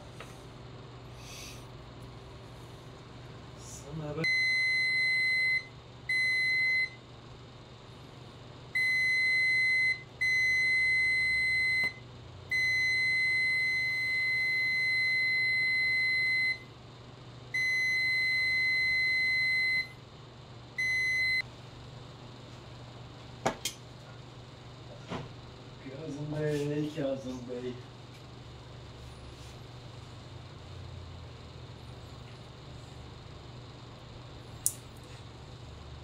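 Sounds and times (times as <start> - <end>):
continuity tester beeping: 4.2 - 7.0, 8.7 - 16.7, 17.5 - 20.0, 20.8 - 21.5.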